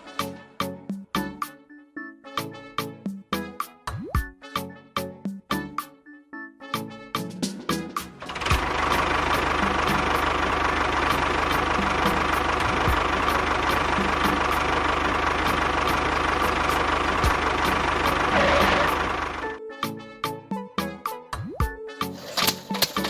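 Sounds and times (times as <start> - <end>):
small engine running: 8.1 - 19.6.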